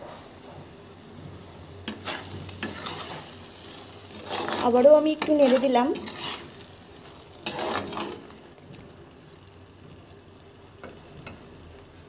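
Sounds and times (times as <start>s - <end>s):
paste sizzling in a pan: 0.1s - 12.0s
metal spatula scraping pan: 1.8s - 8.3s.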